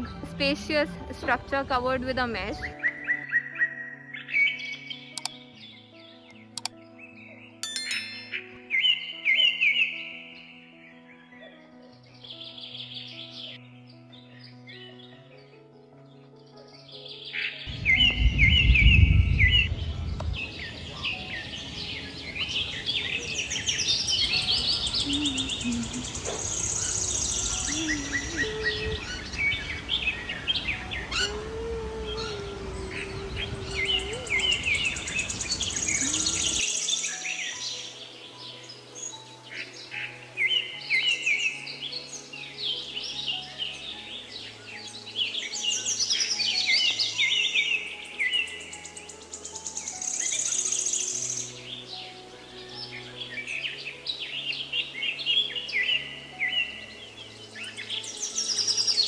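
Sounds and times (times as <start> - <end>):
birds chirping and singing: 0.0 - 59.0
loud low rumble: 17.7 - 20.6
steady low noise: 17.7 - 23.3.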